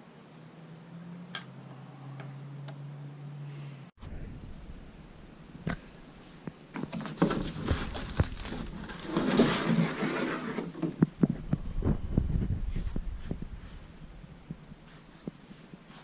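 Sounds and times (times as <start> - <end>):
rustling: 5.5 - 16.0.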